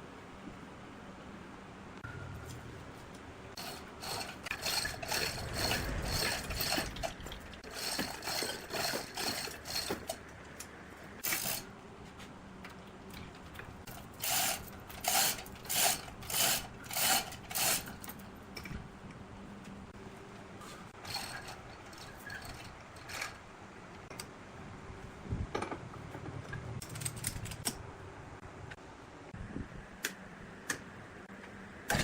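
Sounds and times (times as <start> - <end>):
scraping strokes on wood: 3.5 - 10.2.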